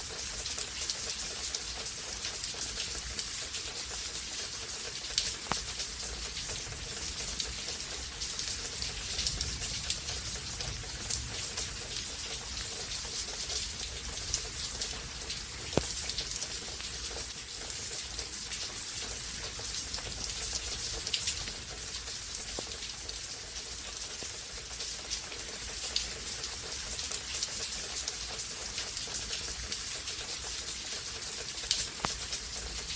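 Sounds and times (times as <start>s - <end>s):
rain hissing: 1.9s - 23.7s
sharp raindrop hits: 5.3s - 16.4s.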